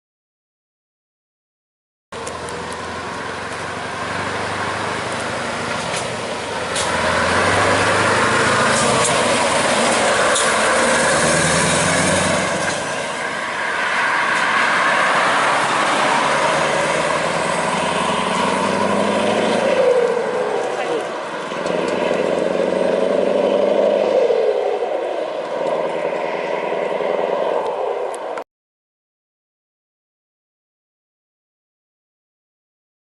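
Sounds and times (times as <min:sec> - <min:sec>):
diesel truck engine under load: 0:02.2 - 0:28.4.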